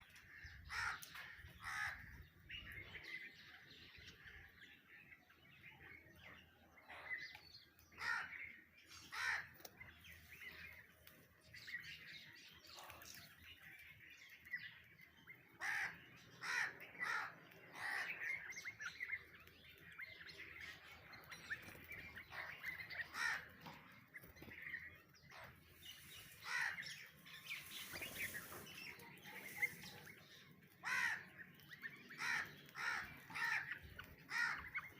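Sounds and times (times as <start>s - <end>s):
harsh caw-like bird calls: 0.0s - 2.7s, 7.9s - 9.9s, 15.4s - 19.1s, 22.2s - 24.1s, 25.3s - 34.9s
bird chirps: 0.0s - 34.9s.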